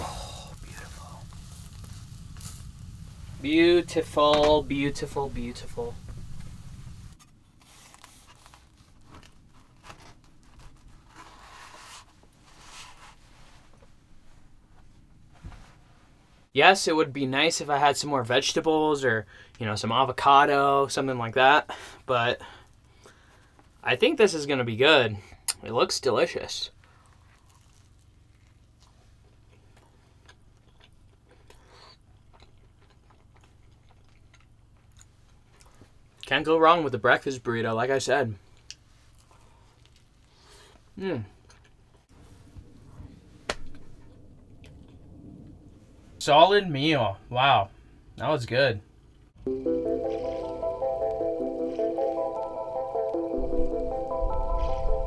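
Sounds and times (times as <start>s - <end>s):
food wrapper rustling: 4.7s - 13.2s, 26.8s - 36.2s, 38.5s - 40.9s
faint chewing and biting: 26.7s - 36.3s, 38.4s - 42.1s.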